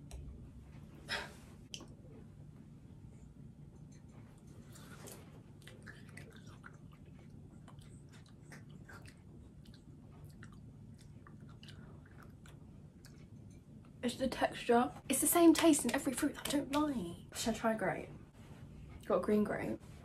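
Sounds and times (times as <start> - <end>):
person chewing melon: 4.6 - 13.8.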